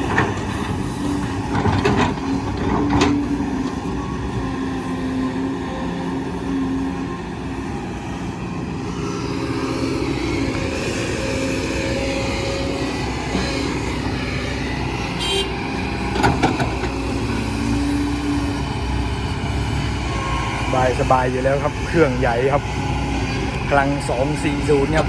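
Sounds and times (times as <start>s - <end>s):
diesel truck engine under load: 0.0s - 25.0s
clatter of knocks: 16.1s - 17.0s.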